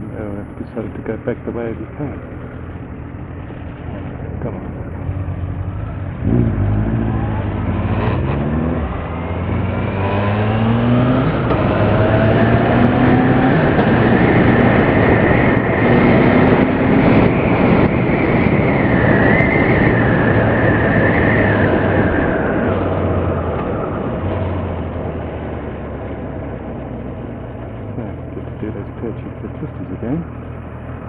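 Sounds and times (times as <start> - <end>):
motorcycle engine accelerating: 0.0 - 31.0
wind noise: 3.1 - 27.5.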